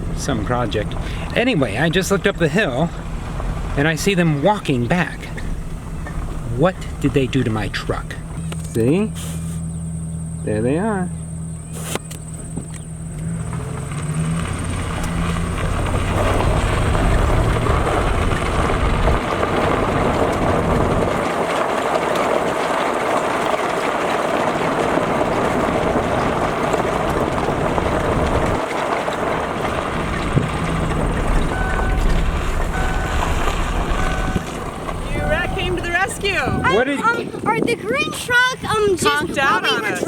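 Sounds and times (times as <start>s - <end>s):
vehicle engine running: 0.0s - 40.0s
wind noise: 11.8s - 40.0s
short beeps: 31.5s - 34.5s.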